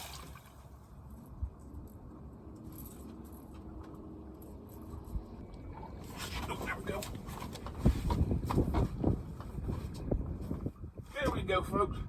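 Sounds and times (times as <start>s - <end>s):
wind rumble on microphone: 4.6s - 12.0s.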